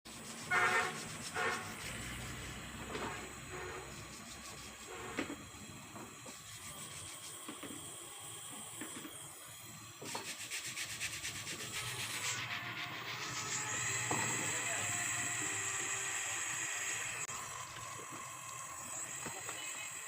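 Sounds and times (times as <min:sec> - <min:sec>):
scraping on hard surface: 0:00.2 - 0:02.0.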